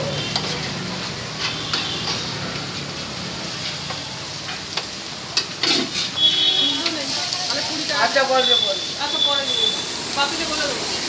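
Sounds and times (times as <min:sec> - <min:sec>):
food sizzling in a metal pan: 0:00.0 - 0:11.0
metal utensil clinking on pan: 0:05.4 - 0:06.2.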